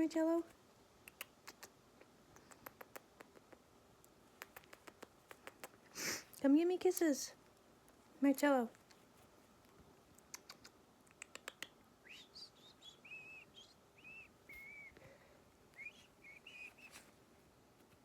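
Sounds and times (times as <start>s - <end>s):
faint clicks: 1.0s - 5.8s, 9.6s - 11.8s
soft whistled chirps: 11.4s - 17.1s.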